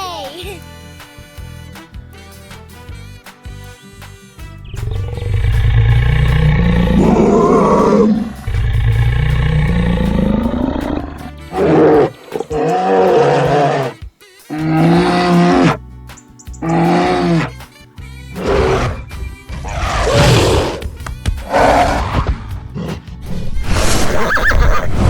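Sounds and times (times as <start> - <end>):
cartoon animal roars and calls: 4.8 - 15.8, 16.6 - 17.6, 18.4 - 20.9, 21.5 - 23.0.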